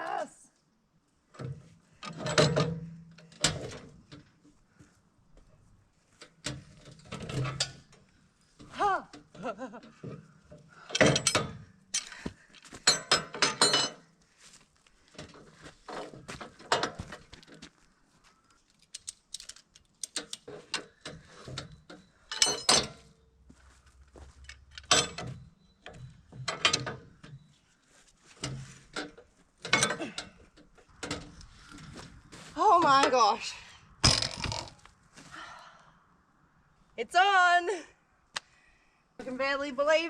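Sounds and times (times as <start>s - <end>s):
hand crane hoist ratcheting clicks: 18.7s - 21.2s.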